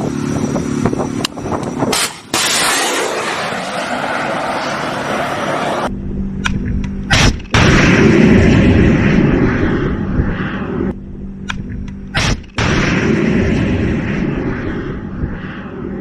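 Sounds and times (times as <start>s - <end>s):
weapon fire or explosions: 1.9s - 4.6s, 7.1s - 11.0s, 12.1s - 16.0s.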